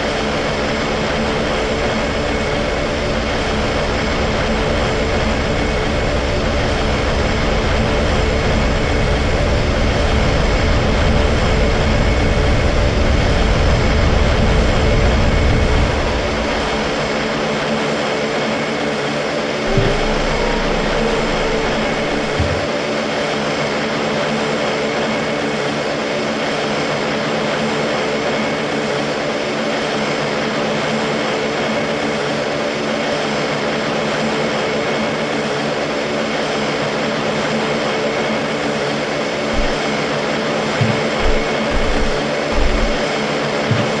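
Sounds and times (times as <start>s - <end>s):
aircraft engine drone: 0.0s - 44.0s
short low knocks: 19.7s - 22.7s, 40.8s - 43.0s.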